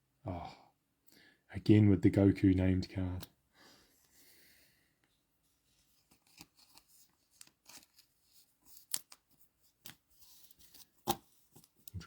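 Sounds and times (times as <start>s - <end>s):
trading cards rustling and clicking: 5.8s - 12.0s.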